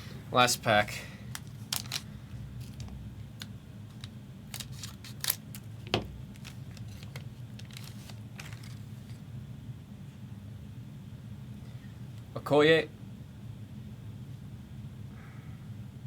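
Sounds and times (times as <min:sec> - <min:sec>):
low room hum: 0:00.0 - 0:16.0
wrapper crinkling: 0:01.3 - 0:02.9, 0:03.9 - 0:09.2
card pack wrapper tearing: 0:01.3 - 0:03.0, 0:03.9 - 0:09.2.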